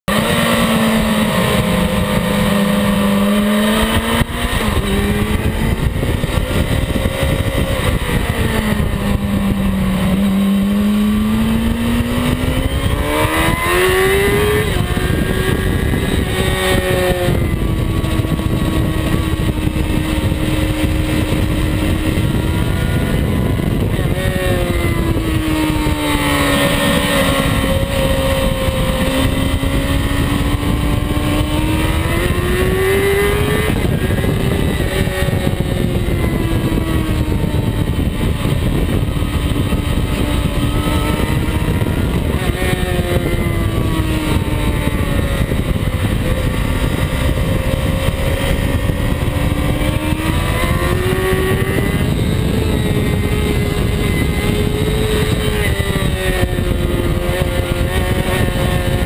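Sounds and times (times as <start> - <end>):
motorcycle engine revving: 0.0 - 59.0
wind rushing on microphone: 0.1 - 59.0.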